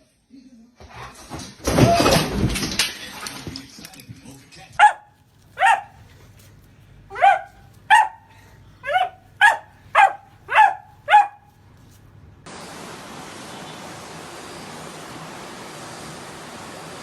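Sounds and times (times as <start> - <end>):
dog barking: 4.8 - 6.1, 7.1 - 11.5
steady hiss: 12.5 - 17.0.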